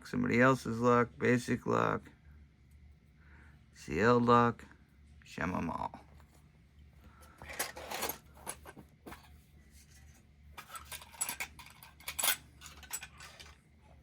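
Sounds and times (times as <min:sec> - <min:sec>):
metal lock clicks and clinks: 0:10.6 - 0:13.6.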